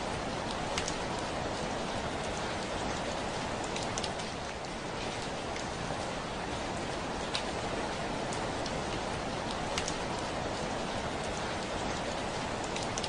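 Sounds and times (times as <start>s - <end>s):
steady rain: 0.0s - 13.0s
raindrop ticking on window: 0.5s - 1.2s, 9.4s - 10.3s.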